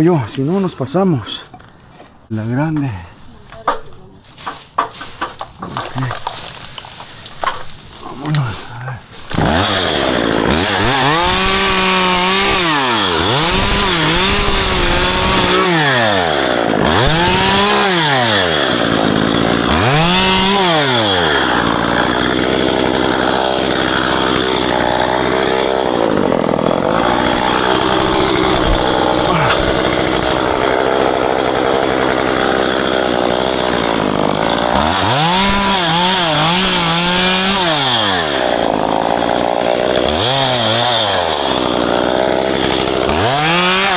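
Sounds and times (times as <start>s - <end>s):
chainsaw engine revving and cutting: 9.3s - 43.9s.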